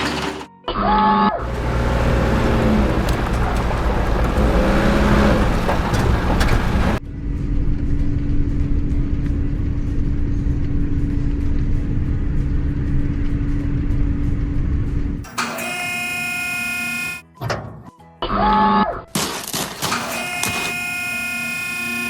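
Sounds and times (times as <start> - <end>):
heavy truck engine running: 0.0 - 0.5, 1.4 - 7.0
constant whine: 1.4 - 7.0, 15.2 - 17.2, 20.0 - 22.0.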